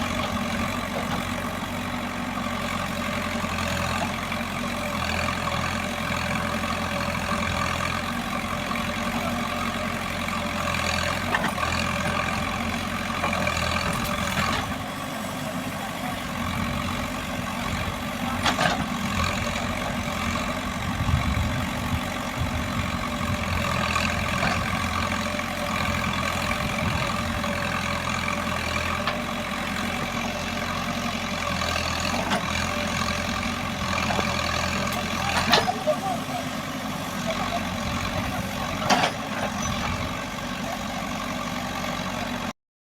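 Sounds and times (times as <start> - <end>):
diesel engine running: 0.0 - 42.5.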